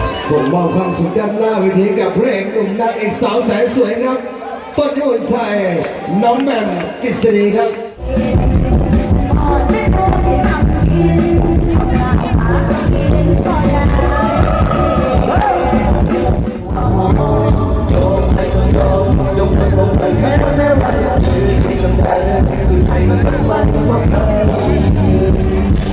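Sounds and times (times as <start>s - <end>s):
live band with heavy bass: 0.0s - 1.4s, 4.9s - 25.9s
person singing: 8.0s - 25.9s.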